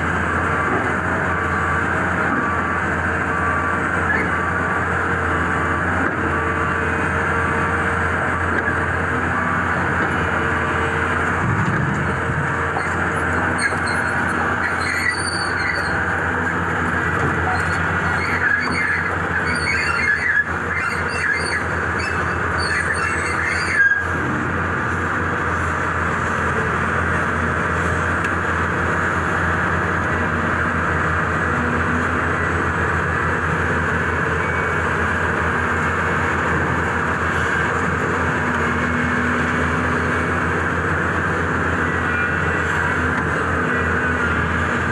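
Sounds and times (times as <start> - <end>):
excavator engine and hydraulics: 0.0 - 44.9
metallic squeals: 12.8 - 16.1, 17.4 - 24.1.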